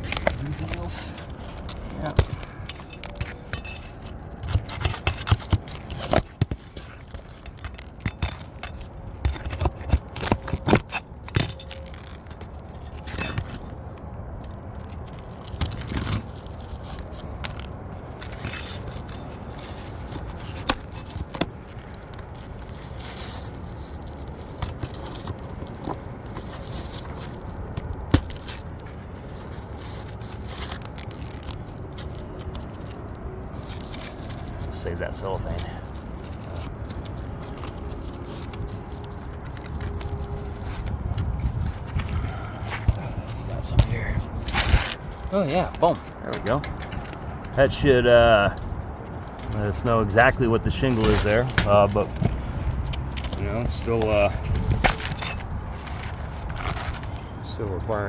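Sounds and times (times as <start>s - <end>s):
shingle scraping: 0.0s - 58.0s.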